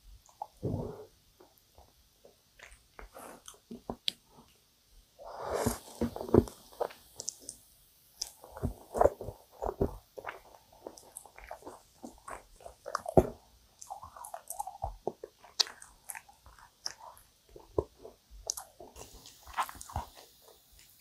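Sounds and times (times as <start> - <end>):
chewing mouth sounds: 8.2 - 21.0.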